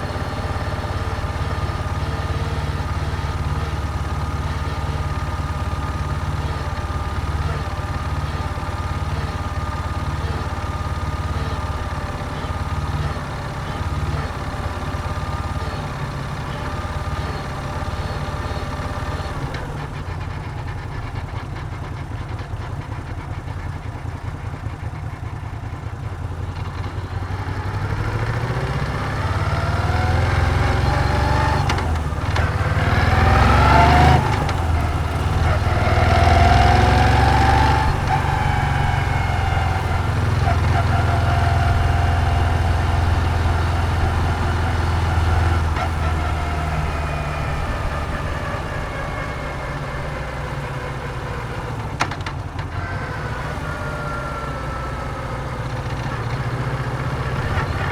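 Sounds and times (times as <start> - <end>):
motorcycle engine running and accelerating: 0.0 - 57.9.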